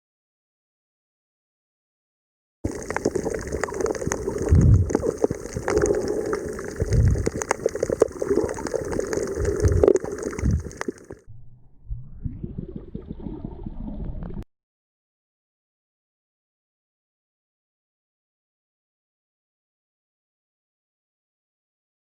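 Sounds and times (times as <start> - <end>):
water bubbling and gurgling: 2.7 - 14.4.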